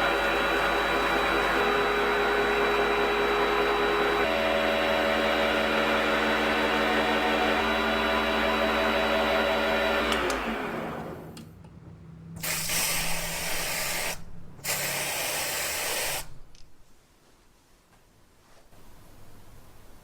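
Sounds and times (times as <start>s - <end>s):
hissing bursts: 12.4s - 16.4s.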